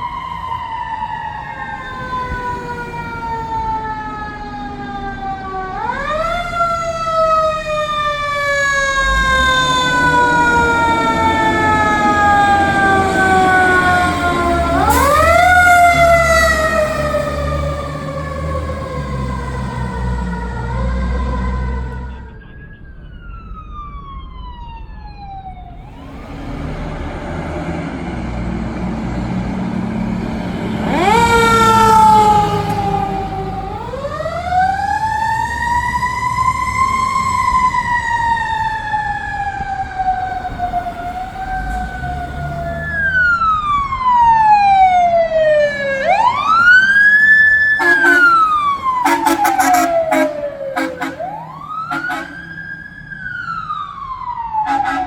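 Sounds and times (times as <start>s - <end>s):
heavy vehicle engine rumble: 0.0s - 45.2s, 46.0s - 55.0s
emergency siren wailing: 0.0s - 55.0s
short horn blasts: 47.8s - 52.4s, 54.7s - 55.0s.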